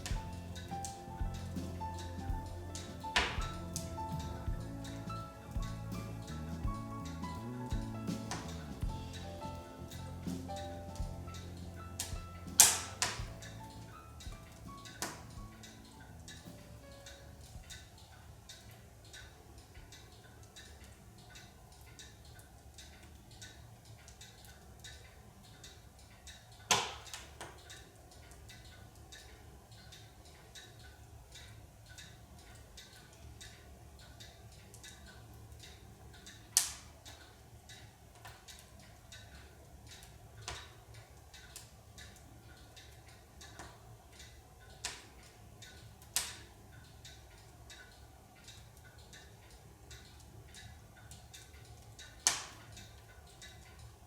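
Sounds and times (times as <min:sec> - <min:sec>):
sharp pops of burning wood: 0:00.0 - 0:17.8, 0:26.7 - 0:27.6, 0:36.6 - 0:36.9, 0:46.1 - 0:46.5, 0:52.2 - 0:52.7
firewood crackling in a stove: 0:00.0 - 0:54.0.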